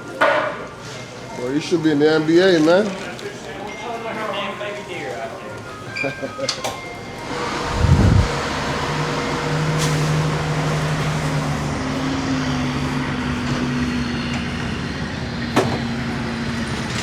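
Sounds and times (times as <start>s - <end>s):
diesel truck engine running: 7.2s - 17.0s.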